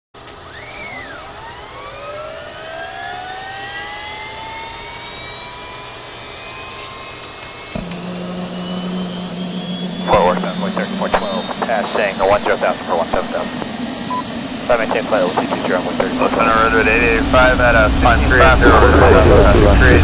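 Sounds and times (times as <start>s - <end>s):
helicopter turbine whine: 0.2s - 20.0s
steady low hum: 7.7s - 20.0s.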